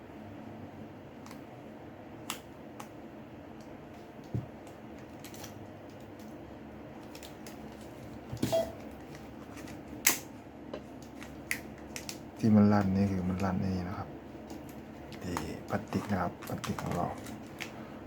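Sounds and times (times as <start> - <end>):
plastic frame clicking and crackling: 14.5 - 17.7.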